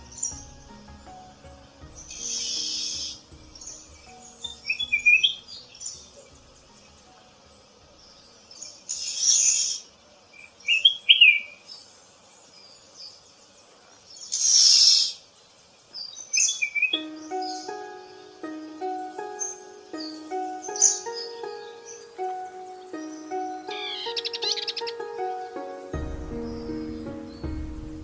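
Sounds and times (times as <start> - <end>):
birds chirping and whistling: 0.0 - 7.1, 16.3 - 27.8
music with sustained notes: 0.0 - 12.8, 16.3 - 28.0.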